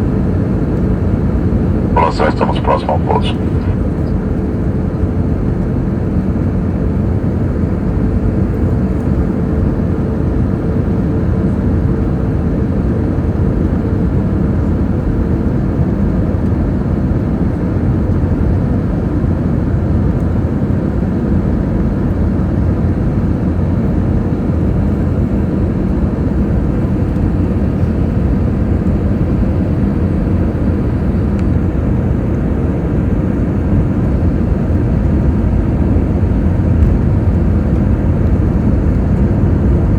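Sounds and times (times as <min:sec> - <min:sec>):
faint steady hum: 0:01.7 - 0:04.1.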